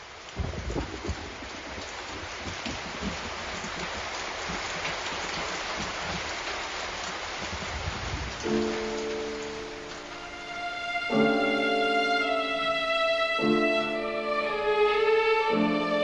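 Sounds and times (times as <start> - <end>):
steady rain falling: 0.0 - 16.0
low thunder rumble: 7.4 - 10.5.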